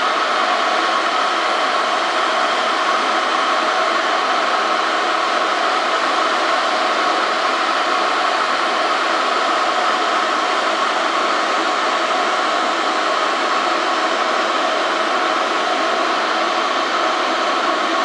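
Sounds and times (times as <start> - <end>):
kettle heating water: 0.0 - 18.0.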